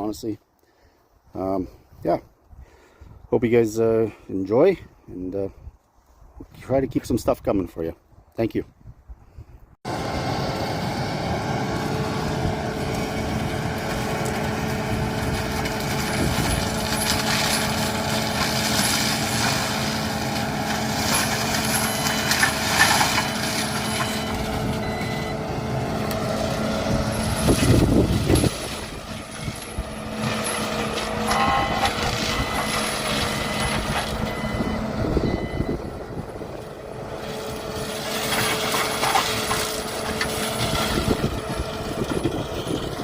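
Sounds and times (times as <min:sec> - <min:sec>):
heavy machine drone: 0:09.9 - 0:43.0.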